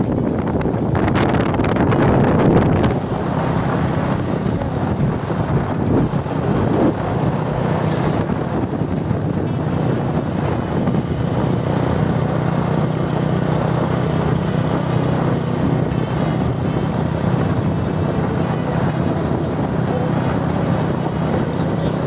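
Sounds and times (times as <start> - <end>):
motorcycle engine cruising: 0.0 - 22.0
wind noise on microphone: 0.0 - 22.0.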